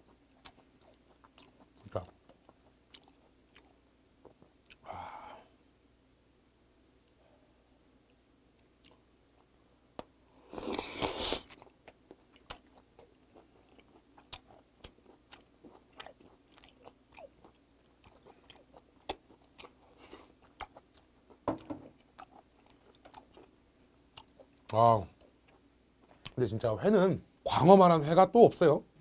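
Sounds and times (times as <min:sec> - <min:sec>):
person chewing with wet mouth clicks: 0:00.0 - 0:04.8, 0:10.6 - 0:21.4, 0:22.0 - 0:23.5, 0:24.1 - 0:26.4.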